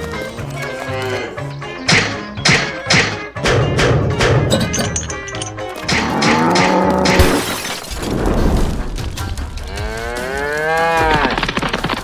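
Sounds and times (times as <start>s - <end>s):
cow mooing: 6.0s - 7.2s.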